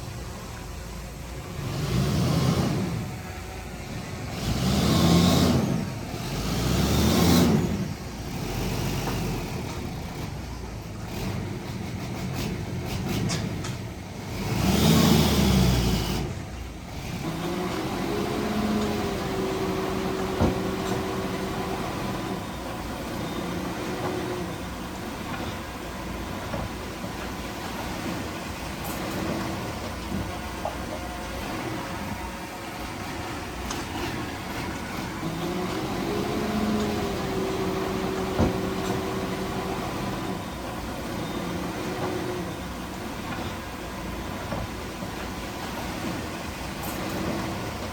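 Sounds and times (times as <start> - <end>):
diesel engine revving: 0.0 - 47.9.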